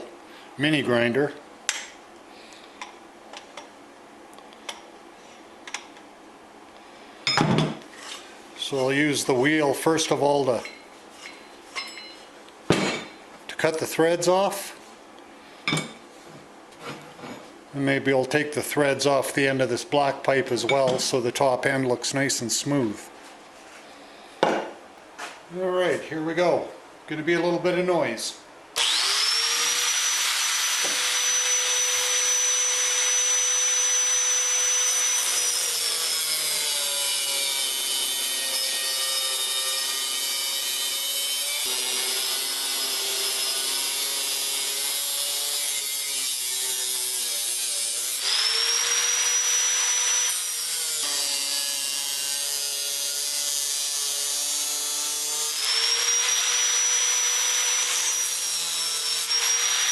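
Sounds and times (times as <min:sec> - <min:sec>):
angle grinder cutting metal: 0:28.8 - 0:59.9.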